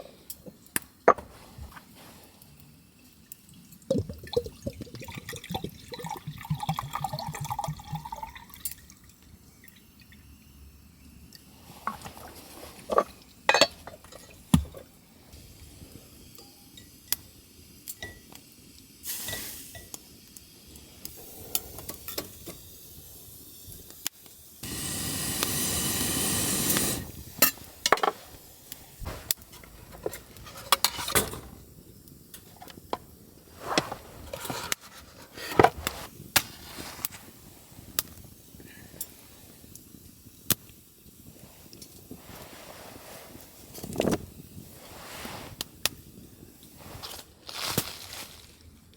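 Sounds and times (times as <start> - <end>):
liquid pouring: 3.2 - 10.4
cookware clinking and knocking: 12.9 - 14.8, 27.4 - 28.2.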